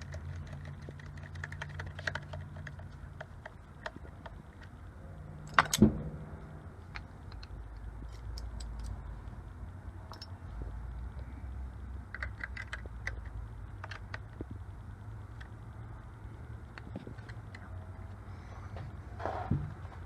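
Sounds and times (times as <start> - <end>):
small parts clicking and tapping: 0.0 - 4.8, 6.9 - 9.1, 10.1 - 10.4, 12.0 - 14.7, 15.3 - 15.6, 16.6 - 17.8
steady low hum: 0.0 - 20.0.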